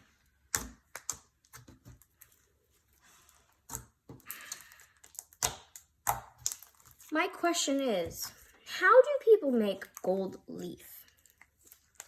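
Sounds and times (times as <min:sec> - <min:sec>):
slime clicking and popping: 0:03.7 - 0:07.1.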